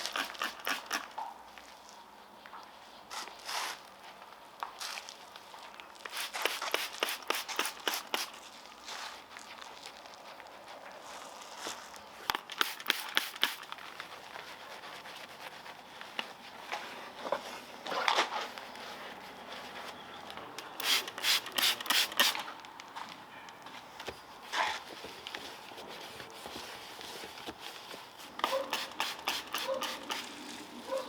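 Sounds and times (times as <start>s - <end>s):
brush scrubbing car trim: 0.0s - 1.1s, 12.6s - 17.1s, 25.6s - 31.0s.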